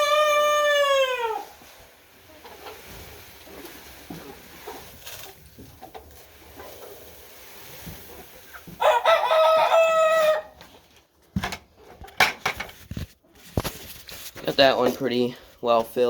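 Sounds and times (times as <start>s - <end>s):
chickens clucking: 0.0s - 11.0s, 11.6s - 12.6s
rooster crowing: 8.8s - 10.6s.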